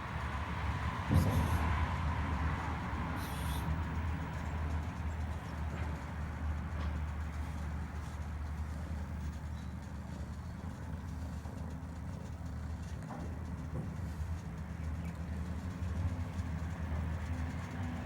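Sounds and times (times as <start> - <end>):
cat purring: 7.4 - 16.5.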